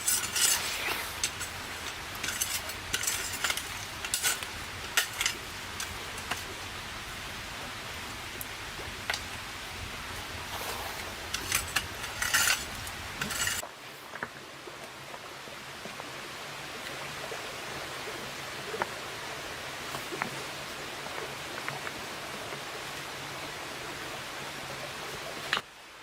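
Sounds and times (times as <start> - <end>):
metal utensil scraping a pot: 0.0 - 6.6, 10.5 - 13.6
rushing hiss: 0.0 - 13.6
steady hiss: 0.0 - 14.3.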